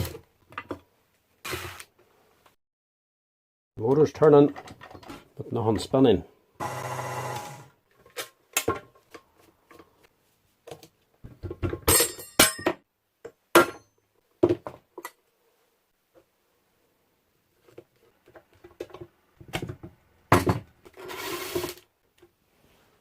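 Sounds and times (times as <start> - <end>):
metal parts clinking and knocking: 11.6 - 12.8.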